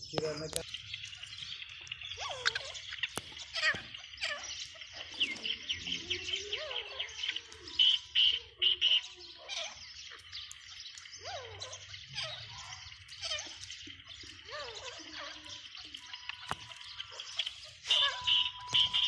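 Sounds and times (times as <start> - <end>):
chirping bird calls: 0.0 - 19.0
shrill francolin calls: 0.5 - 19.0.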